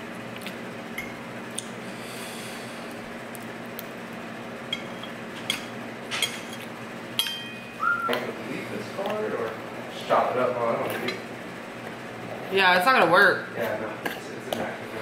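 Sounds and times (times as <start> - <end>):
cutlery clinking against a plate: 4.8 - 7.6.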